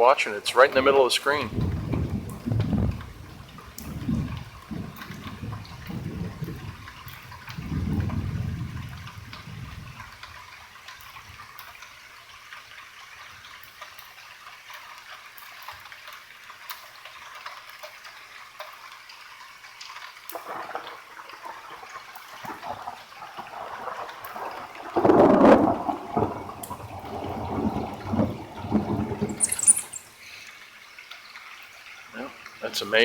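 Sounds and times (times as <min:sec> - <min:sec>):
light rain falling: 0:00.0 - 0:33.0
water dripping: 0:00.0 - 0:33.0
distant thunder rumble: 0:01.5 - 0:10.2, 0:23.4 - 0:29.5.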